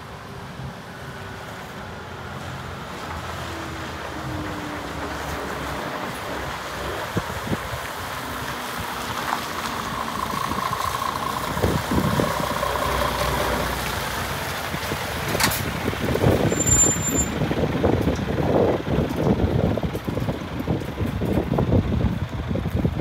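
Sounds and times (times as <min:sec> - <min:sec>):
truck diesel engine running: 0:00.2 - 0:23.0
steady whine: 0:09.1 - 0:14.0.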